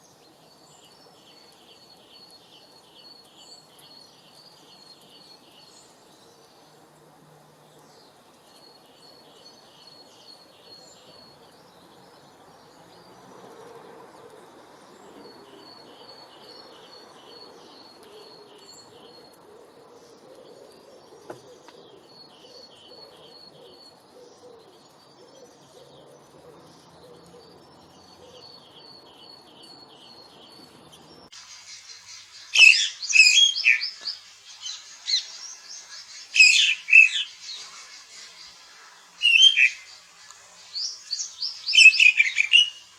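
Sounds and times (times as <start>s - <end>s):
close bird chirping calls: 28.2s - 42.9s
birds singing trilled phrases: 31.2s - 42.9s.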